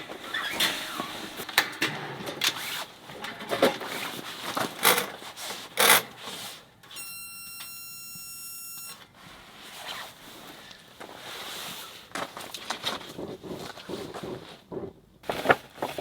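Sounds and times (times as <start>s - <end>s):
high electronic beep: 6.9s - 9.0s
objects knocking and rustling: 12.2s - 16.0s.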